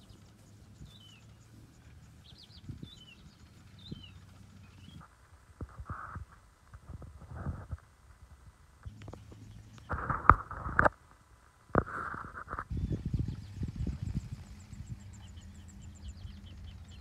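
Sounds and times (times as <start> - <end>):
faint bird chirps: 0.0 - 5.1, 12.4 - 17.0
low steady hum: 0.0 - 17.0.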